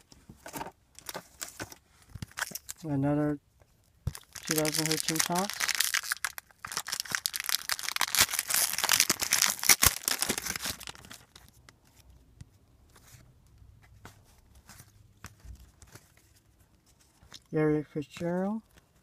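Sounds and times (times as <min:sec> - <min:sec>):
wrapper tearing and crinkling: 0:02.3 - 0:02.8, 0:04.1 - 0:11.5.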